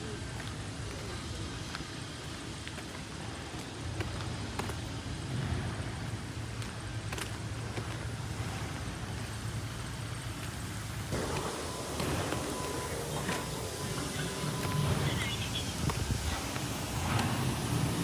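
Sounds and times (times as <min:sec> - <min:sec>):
low motor hum: 0:07.5 - 0:18.0.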